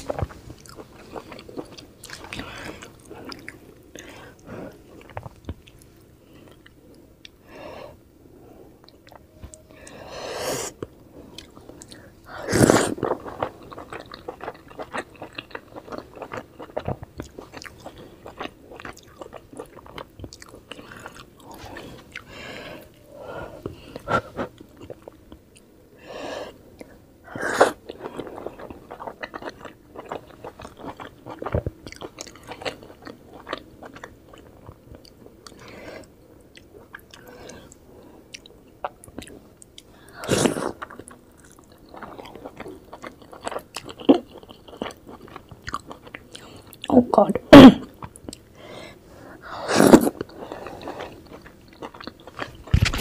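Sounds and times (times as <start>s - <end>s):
wet chewing sounds: 12.7s - 22.9s, 27.7s - 46.9s, 49.9s - 53.0s.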